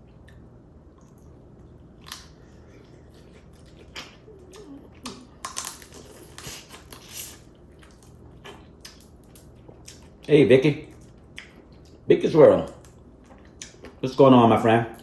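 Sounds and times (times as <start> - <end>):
crab shells cracking: 2.0 - 2.4, 5.0 - 8.2.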